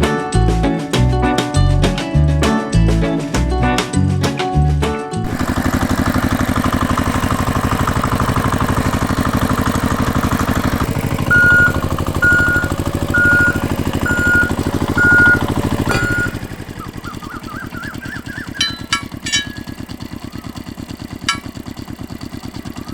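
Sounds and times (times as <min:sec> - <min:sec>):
tractor engine chugging: 0:05.2 - 0:22.9
short high beeps: 0:11.3 - 0:16.4.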